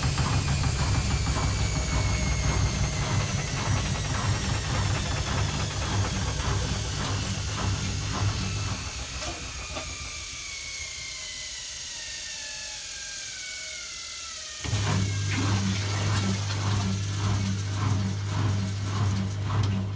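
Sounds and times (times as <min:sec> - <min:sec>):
loud pulsing low hum: 0:00.0 - 0:11.8
low hum: 0:00.0 - 0:12.2
washing machine drum whine: 0:00.0 - 0:19.9.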